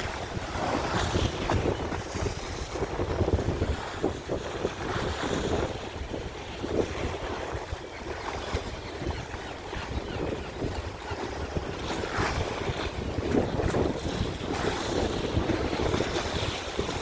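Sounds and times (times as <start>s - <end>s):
sea waves breaking on shore: 0.0s - 17.0s
wind rumble on microphone: 0.0s - 17.0s.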